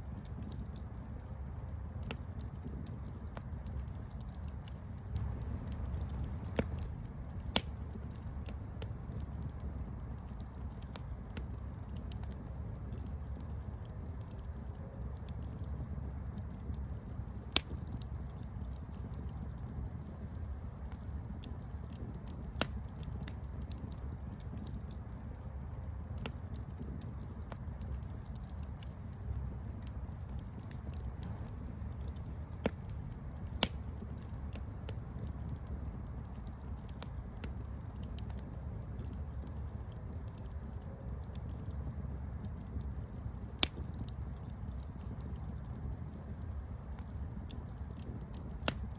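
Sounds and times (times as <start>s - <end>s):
campfire crackling: 0.0s - 48.9s
wood fire burning: 0.0s - 48.9s
fire popping sharply: 2.0s - 13.1s.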